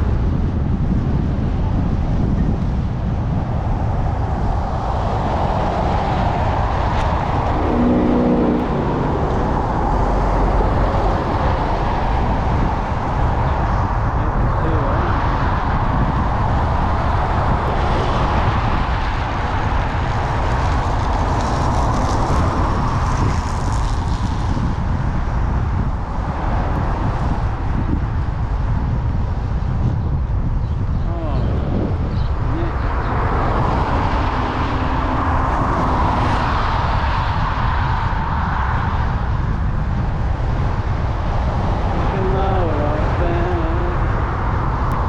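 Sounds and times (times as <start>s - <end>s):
e-bike rolling noise: 0.0s - 45.0s
wind rush on microphone: 0.0s - 45.0s
short pitched tone: 7.4s - 10.5s.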